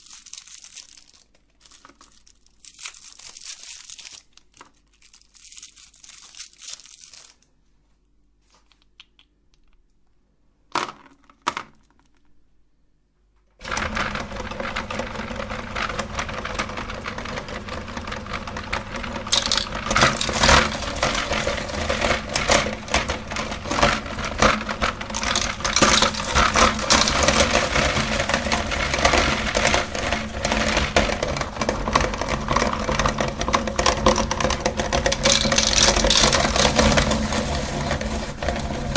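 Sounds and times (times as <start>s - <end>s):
hard candy crunching: 0.0s - 7.5s, 18.6s - 38.9s
crinkling: 0.0s - 10.1s, 10.8s - 12.4s, 18.5s - 38.9s
electric meat grinder motor: 13.6s - 38.9s.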